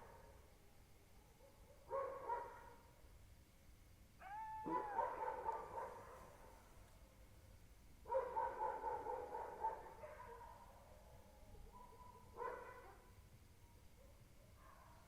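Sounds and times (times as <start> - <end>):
wavering howl-like wailing cry: 4.2 - 5.9.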